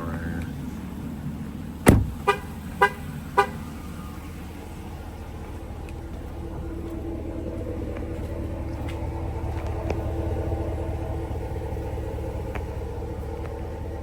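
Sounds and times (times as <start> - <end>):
road rumble: 0.0 - 14.0
truck engine inside cab: 0.0 - 14.0
horn toots: 1.8 - 4.2.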